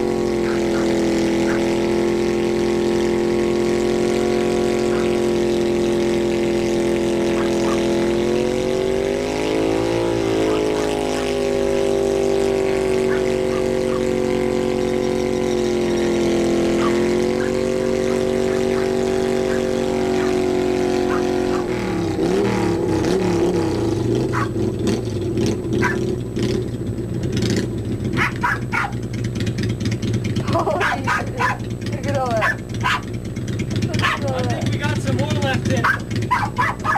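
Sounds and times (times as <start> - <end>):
motorcycle engine at high revs: 0.0 - 36.9
rear tire spinning: 0.0 - 36.9
engine pops and clicks: 24.3 - 36.9.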